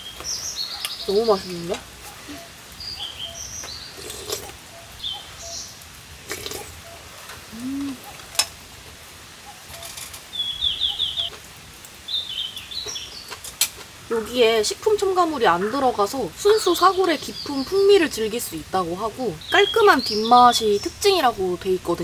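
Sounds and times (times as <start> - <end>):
wild birds chirping: 0.0 - 22.0
bird call with falling notes: 9.7 - 11.4.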